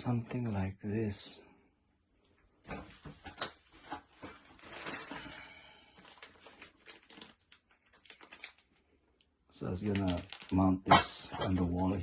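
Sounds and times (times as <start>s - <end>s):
clicks and knocks of handling: 2.7s - 4.4s
packaging rustle: 2.9s - 8.9s, 9.6s - 12.0s.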